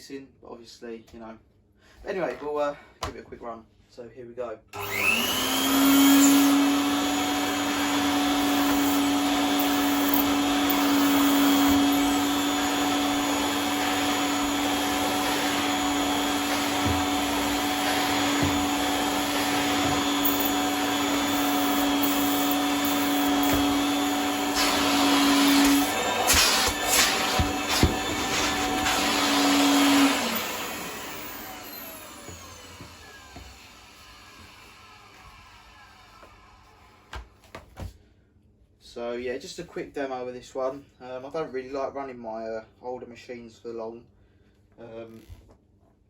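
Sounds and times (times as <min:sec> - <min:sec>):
vacuum cleaner motor running: 0:04.8 - 0:37.1.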